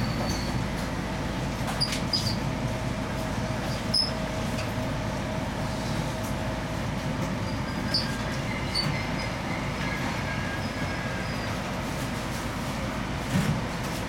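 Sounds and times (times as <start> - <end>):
faint brake squeal: 0.0 - 0.6, 1.8 - 2.4, 3.7 - 4.2, 7.4 - 11.6
electric train rumbling: 0.0 - 14.0.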